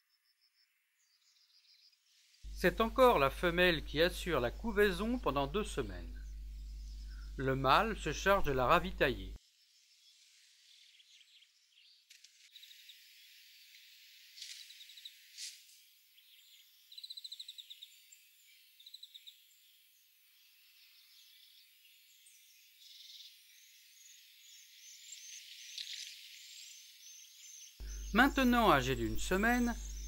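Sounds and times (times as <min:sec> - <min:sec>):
bird trills and chirps: 0:24.6 - 0:30.0
nestlings cheeping: 0:27.8 - 0:30.0.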